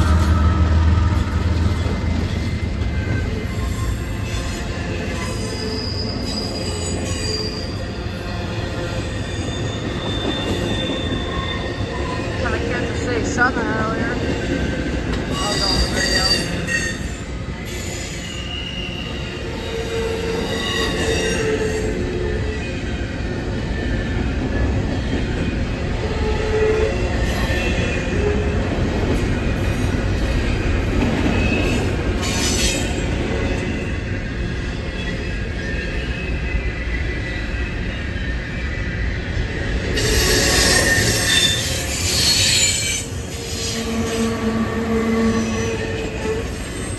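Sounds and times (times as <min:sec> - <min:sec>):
wheels squealing: 0:00.0 - 0:13.0, 0:29.4 - 0:46.9
train rumbling on rails: 0:00.0 - 0:46.9
harsh wheel screech: 0:40.0 - 0:46.9.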